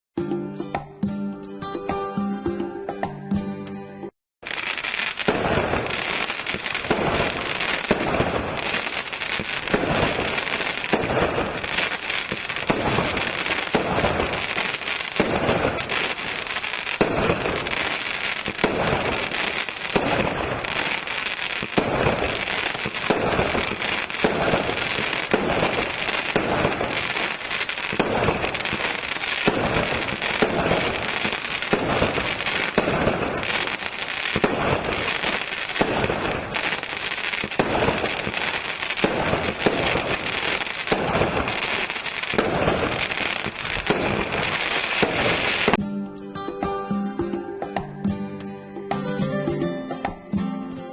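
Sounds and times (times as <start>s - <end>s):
firework crackling: 4.4s - 45.8s
firework launch thumps: 39.0s - 41.6s.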